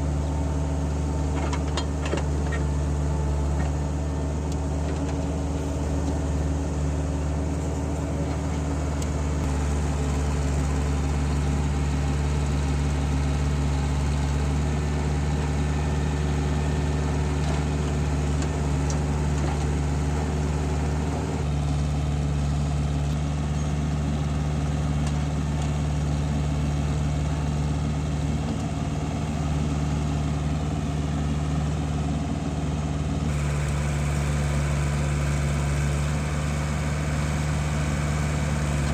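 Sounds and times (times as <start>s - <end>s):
heavy machinery diesel engine: 0.0s - 38.9s.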